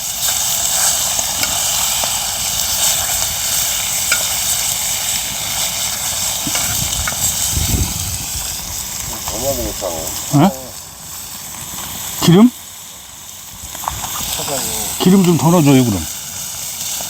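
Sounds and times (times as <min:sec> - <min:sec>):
food sizzling on a griddle: 0:00.0 - 0:17.0.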